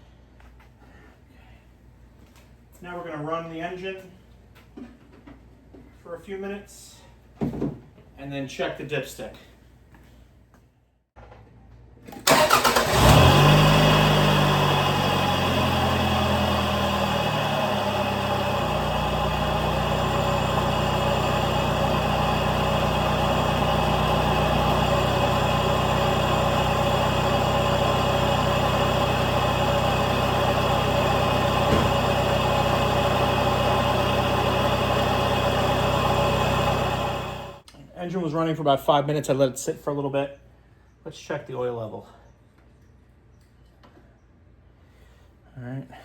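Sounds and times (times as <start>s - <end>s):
car engine cranking and idling: 12.1s - 37.7s.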